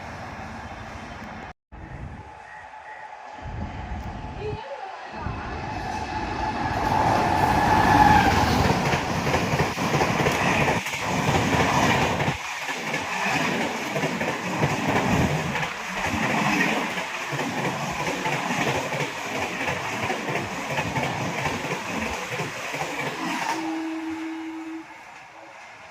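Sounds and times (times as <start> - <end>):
train wheels clattering: 6.9 - 24.1.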